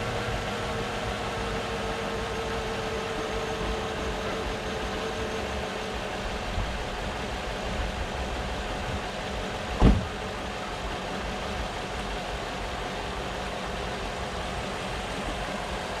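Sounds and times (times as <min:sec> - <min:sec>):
car engine idling: 0:00.0 - 0:16.0
short low thump: 0:09.8 - 0:10.2.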